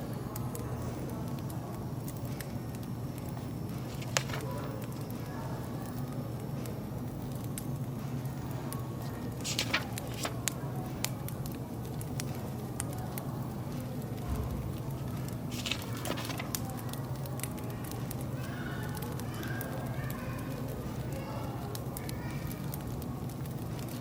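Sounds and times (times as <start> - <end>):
murmur of voices: 0.0 - 24.0
wood fire crackling and popping: 9.0 - 20.2, 21.0 - 24.0.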